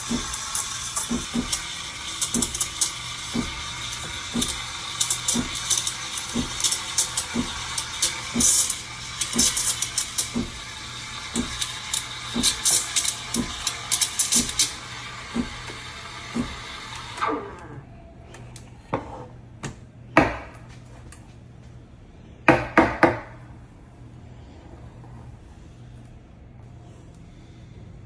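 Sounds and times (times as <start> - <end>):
steam wand hissing into milk: 0.0 - 17.4.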